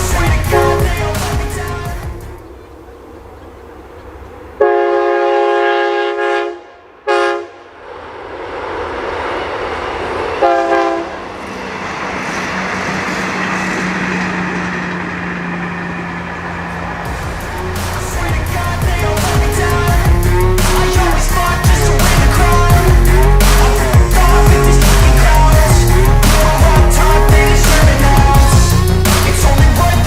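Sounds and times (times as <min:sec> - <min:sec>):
low engine drone: 0:00.0 - 0:30.0
train rushing rumble: 0:00.0 - 0:30.0
train horn blasts: 0:00.2 - 0:01.2, 0:04.6 - 0:07.8, 0:10.4 - 0:11.3.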